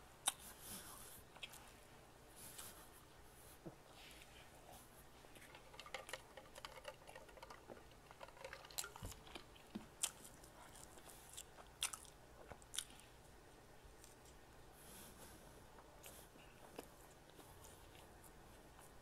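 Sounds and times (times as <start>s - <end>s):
person chewing bread: 0.2s - 1.8s, 4.8s - 13.2s, 13.9s - 19.0s.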